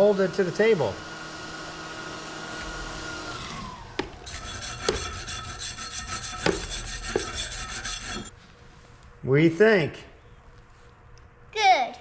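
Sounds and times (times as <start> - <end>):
sharp knocks: 4.0 - 5.4, 6.3 - 7.3
wire brush scrubbing steel: 4.2 - 8.4.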